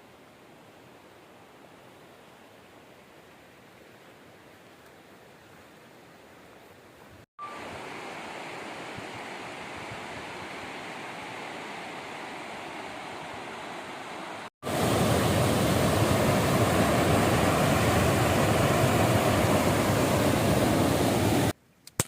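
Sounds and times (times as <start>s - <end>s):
waterfall rushing: 12.4s - 21.6s.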